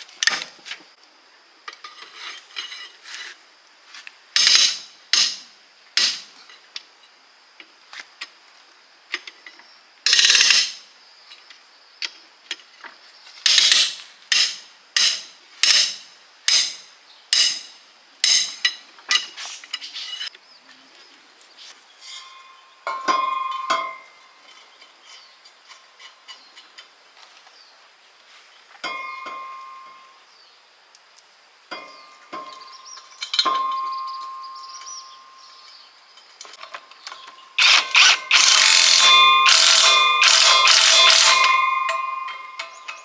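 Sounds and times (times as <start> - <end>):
hand tools clinking on steel: 4.4 - 6.6, 13.4 - 20.3, 22.0 - 27.0, 28.8 - 30.0, 31.7 - 43.0
metal part ringing: 22.1 - 24.2, 32.4 - 35.6, 37.0 - 43.0
metal blows: 37.6 - 43.0.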